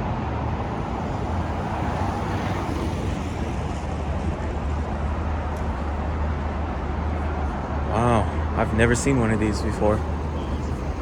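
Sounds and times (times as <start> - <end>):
traffic engine rumble: 0.0 - 11.0.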